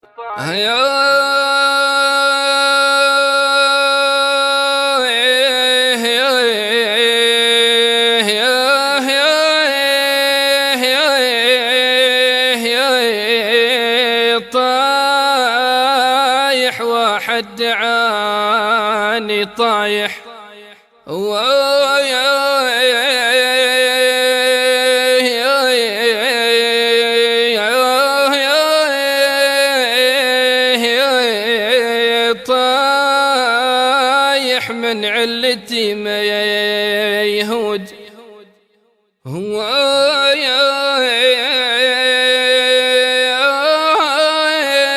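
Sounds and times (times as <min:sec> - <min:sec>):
person singing unaccompanied: 0:00.0 - 0:20.3
person singing a lament: 0:00.0 - 0:38.4, 0:39.3 - 0:44.9.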